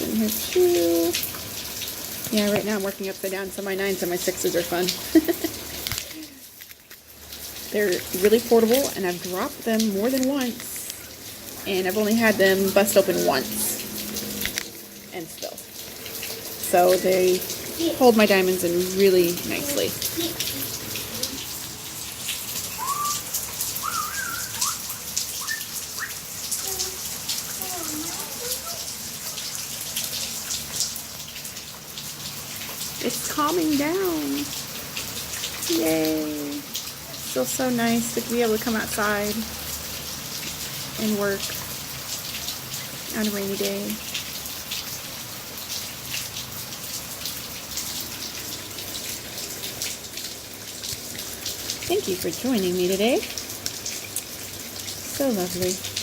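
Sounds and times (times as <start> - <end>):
heavy rain falling: 0.0 - 56.0
raindrops ticking on surface: 0.0 - 56.0
bird whistled calls: 22.7 - 26.3.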